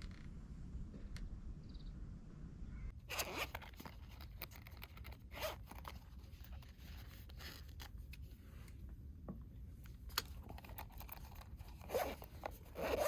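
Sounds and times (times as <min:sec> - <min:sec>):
zipper being pulled: 0:03.1 - 0:06.0, 0:10.9 - 0:13.0.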